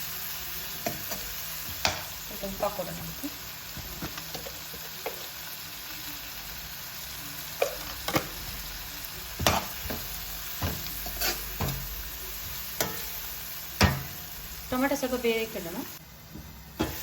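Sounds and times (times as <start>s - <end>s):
food sizzling in oil: 0.0s - 17.0s
spatula scraping a pan: 9.4s - 13.2s.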